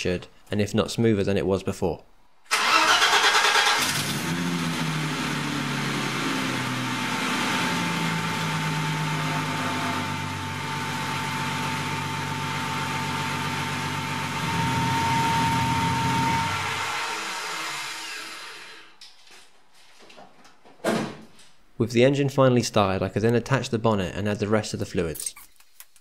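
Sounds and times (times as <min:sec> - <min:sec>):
car engine idling: 0:02.6 - 0:16.9
faint steady whine: 0:14.3 - 0:16.8.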